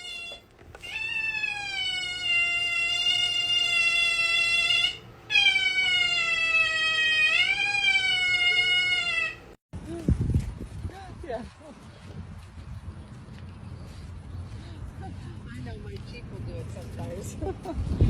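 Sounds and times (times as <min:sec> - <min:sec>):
pet's siren-like calls: 0:00.0 - 0:09.6.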